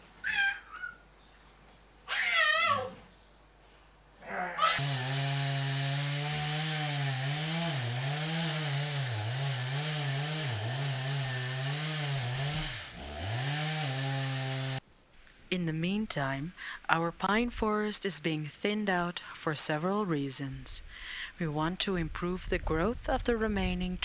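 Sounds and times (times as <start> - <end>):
chainsaw cutting wood: 4.8 - 14.8.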